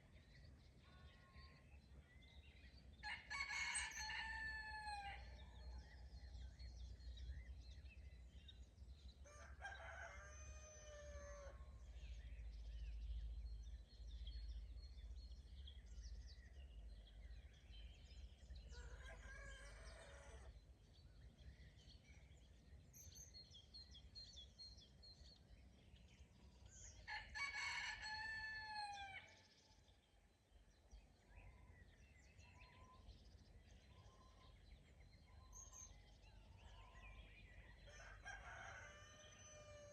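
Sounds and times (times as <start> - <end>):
rooster crowing: 3.0 - 5.3, 18.7 - 20.5, 27.1 - 29.2, 37.9 - 39.9.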